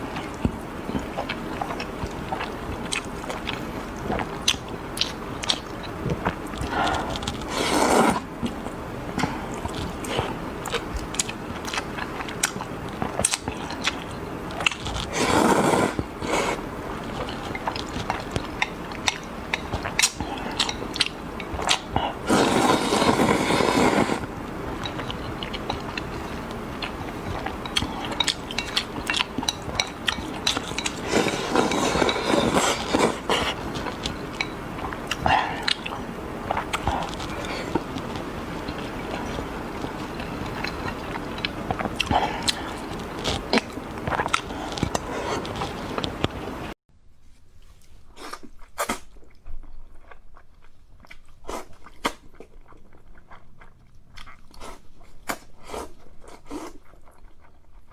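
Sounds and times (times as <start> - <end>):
wet chewing: 0.0 - 46.8, 48.2 - 57.9
slurping noodles: 6.6 - 8.6, 13.0 - 46.8.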